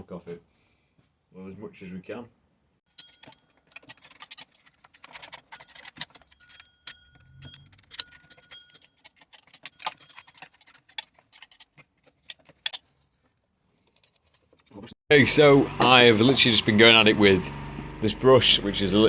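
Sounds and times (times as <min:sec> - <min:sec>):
hand tools scraping metal casing: 0:03.0 - 0:14.9.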